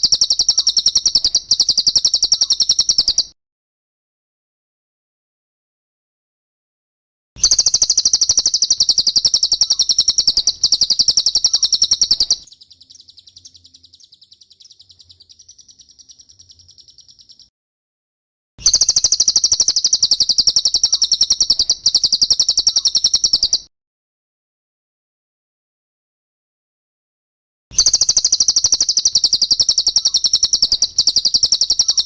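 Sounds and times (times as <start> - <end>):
bird singing high-pitched trill: 0.0 - 3.4, 7.4 - 17.5, 18.6 - 23.7, 27.8 - 32.0.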